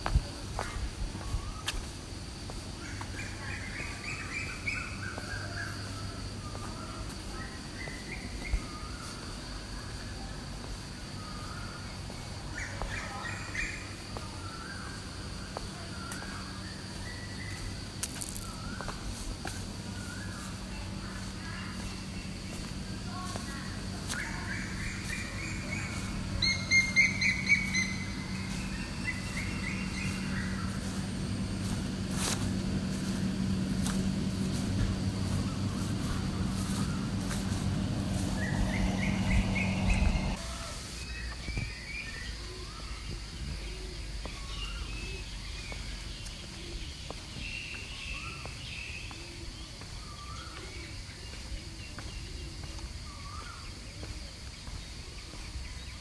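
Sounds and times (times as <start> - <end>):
steady low hum: 0.0 - 41.1
birds chirping and calling: 19.9 - 40.5.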